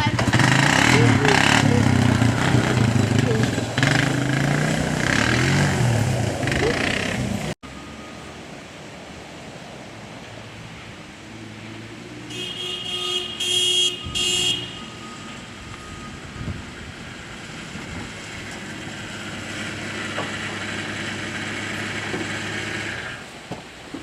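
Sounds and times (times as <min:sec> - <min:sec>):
heavy engine running: 0:00.0 - 0:08.5, 0:15.0 - 0:23.3.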